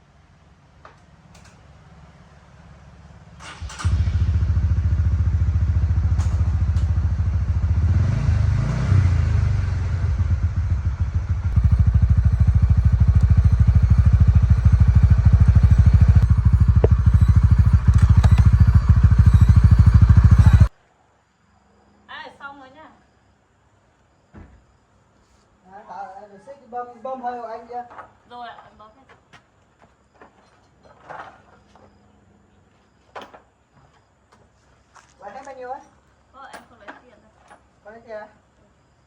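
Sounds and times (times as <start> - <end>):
small motorbike engine running: 3.4 - 20.7.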